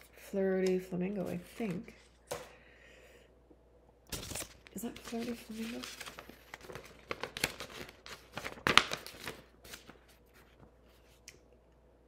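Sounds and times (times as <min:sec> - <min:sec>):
paper rustling: 0:04.1 - 0:11.2.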